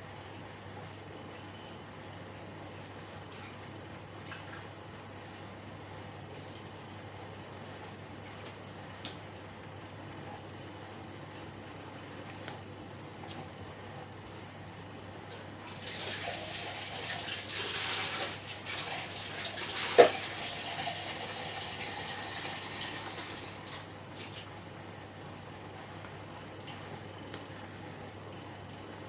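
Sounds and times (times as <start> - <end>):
water running: 15.7 - 24.6.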